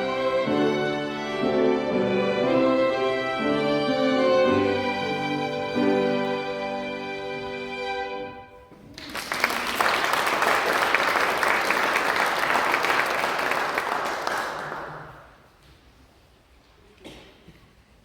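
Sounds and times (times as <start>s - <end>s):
audience applauding: 8.8s - 15.5s.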